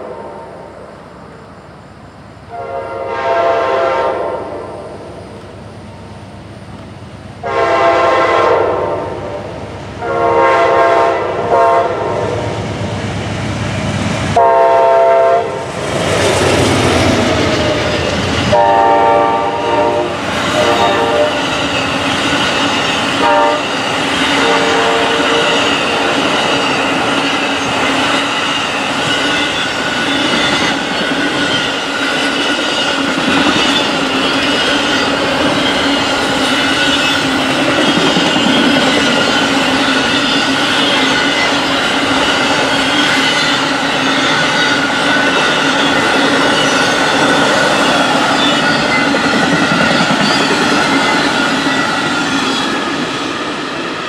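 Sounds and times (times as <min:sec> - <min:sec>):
train air horn blasts: 0:02.5 - 0:05.0, 0:07.4 - 0:12.5, 0:14.4 - 0:15.7, 0:18.5 - 0:21.5, 0:23.2 - 0:26.1
train wheels clattering on rails: 0:15.0 - 0:54.0.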